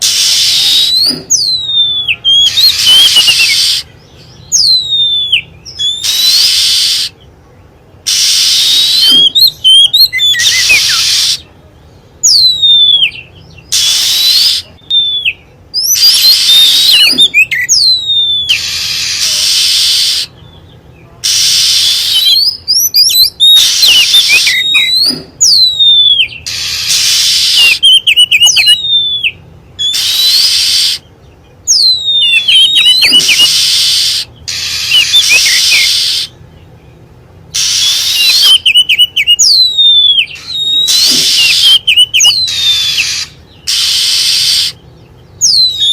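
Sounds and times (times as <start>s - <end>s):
bird whistles sweeping down: 0.0s - 3.9s, 4.6s - 7.1s, 8.1s - 11.4s, 21.3s - 31.0s, 31.7s - 36.3s, 37.6s - 44.8s
harsh hissing bird calls: 0.0s - 45.9s
twittering bird trills: 0.0s - 45.9s.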